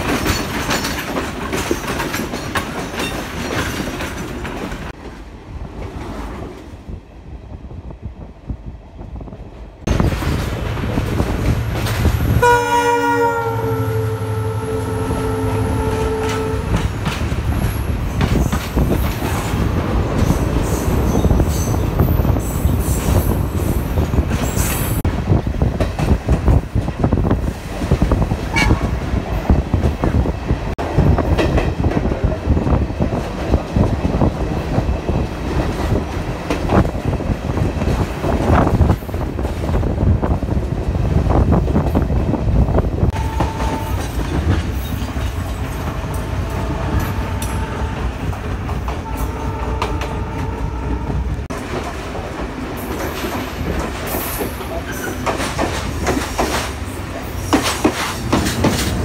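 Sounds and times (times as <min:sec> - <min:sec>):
train wheels clattering over joints: 0:00.0 - 0:05.0, 0:15.9 - 0:30.3, 0:51.5 - 0:59.0.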